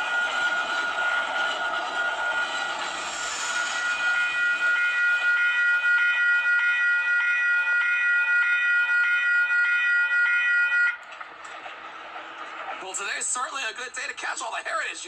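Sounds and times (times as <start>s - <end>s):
steady high tone: 0.0s - 11.0s
railway warning bell ringing: 0.0s - 11.2s
train noise: 0.0s - 15.0s.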